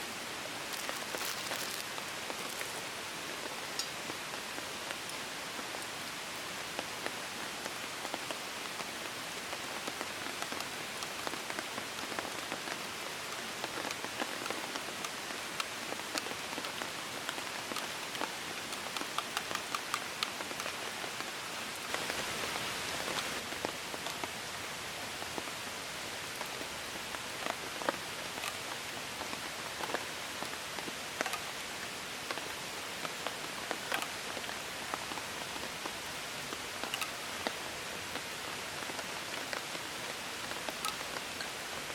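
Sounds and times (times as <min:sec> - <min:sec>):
steady rain: 0:00.0 - 0:41.9
large raindrops knocking: 0:06.8 - 0:24.0.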